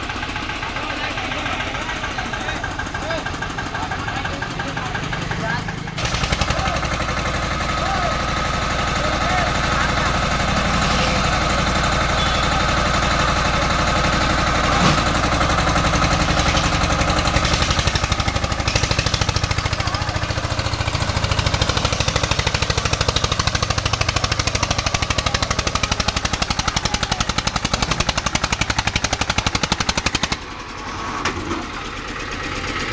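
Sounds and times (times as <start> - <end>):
tractor diesel engine straining: 0.0 - 32.9.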